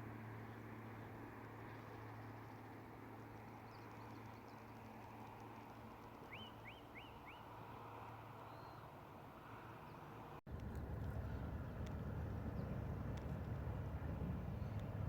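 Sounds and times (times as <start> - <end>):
songbird calls: 6.1 - 7.5.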